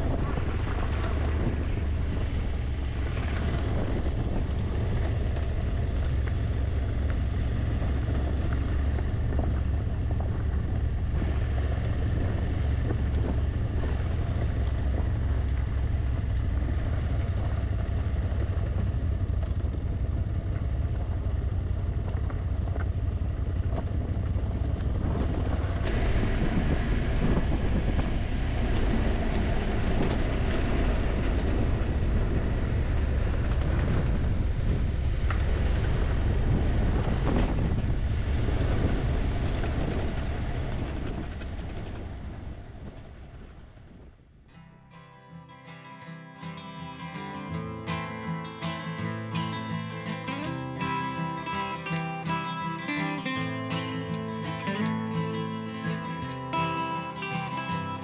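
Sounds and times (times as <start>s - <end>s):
motorcycle engine rumble: 0.0s - 44.4s, 49.2s - 58.0s
wind buffeting microphone: 0.0s - 44.4s.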